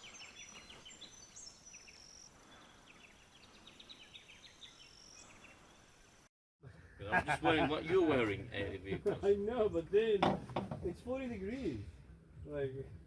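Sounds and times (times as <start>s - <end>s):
small birds chirping: 0.0s - 7.1s.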